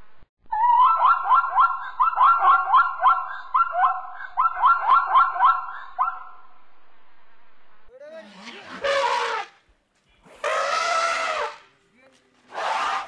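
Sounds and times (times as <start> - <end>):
zebra yelping barks: 0.6 - 6.3, 10.4 - 11.6.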